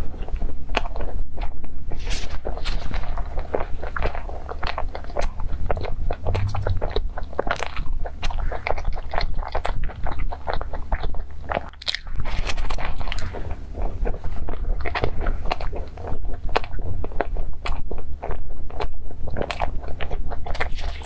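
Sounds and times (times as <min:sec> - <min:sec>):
chewing crunchy pastry: 0:00.0 - 0:21.0
biting into pastry: 0:07.5 - 0:21.0.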